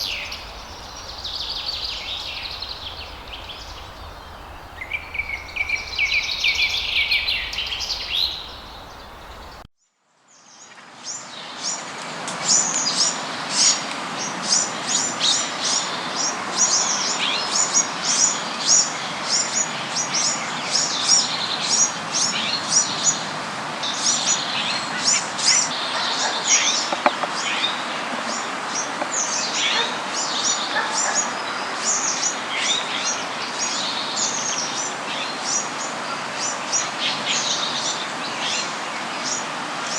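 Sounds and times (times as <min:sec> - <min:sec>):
background hiss: 0:00.0 - 0:09.7
birds chirping: 0:00.0 - 0:09.7.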